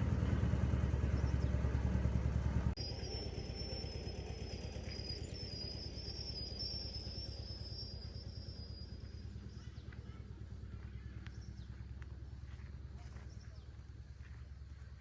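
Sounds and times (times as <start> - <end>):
engine pulsing: 0.0 - 15.0.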